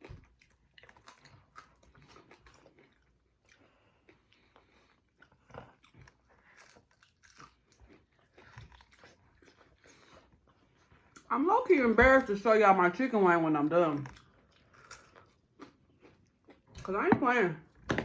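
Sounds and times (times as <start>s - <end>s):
chewing chicken wings: 0.0s - 11.3s.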